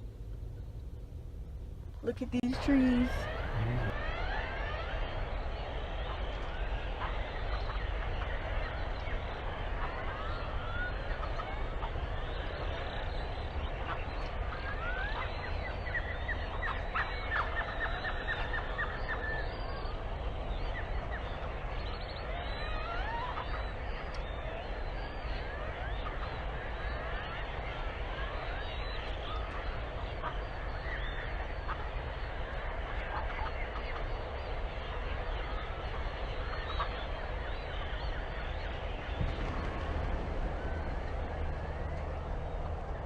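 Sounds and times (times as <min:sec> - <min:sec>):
low steady rumble: 0:00.0 - 0:05.7, 0:26.6 - 0:43.0
flock of birds calling: 0:02.4 - 0:04.0.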